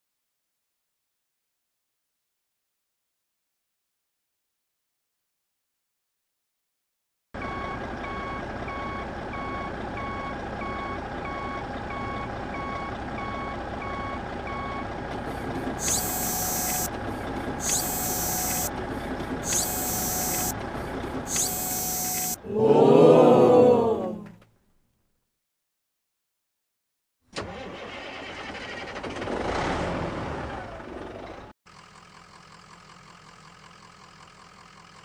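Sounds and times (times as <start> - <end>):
truck reversing beeper: 7.4 - 22.4
engine rumble: 7.4 - 23.6
short hissing bursts: 15.2 - 16.9, 17.6 - 18.7, 19.4 - 20.6, 21.3 - 22.4
lower beep: 15.8 - 16.9, 17.6 - 18.7, 19.5 - 20.6, 21.3 - 22.4.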